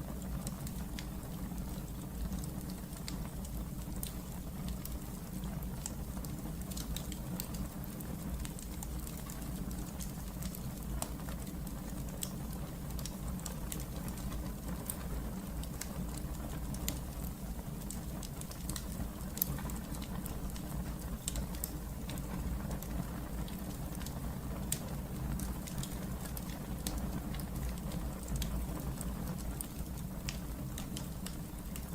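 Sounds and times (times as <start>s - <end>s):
low rumble of flames: 0.0s - 31.9s
wood fire crackling and popping: 0.0s - 31.9s.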